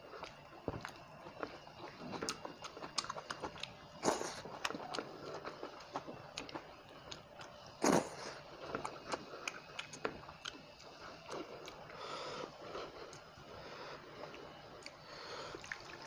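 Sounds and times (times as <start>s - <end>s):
chewing with wet mouth clicks: 0.2s - 12.0s, 14.2s - 15.0s
loud bite: 7.8s - 8.3s.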